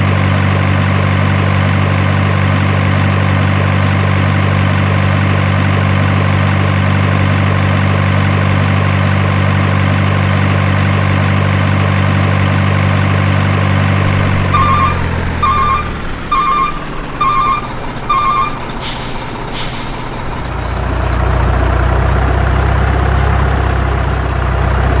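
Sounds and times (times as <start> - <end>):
truck engine idling: 0.0 - 25.0
reversing beeps: 14.4 - 18.8
air brake hisses: 18.8 - 20.2.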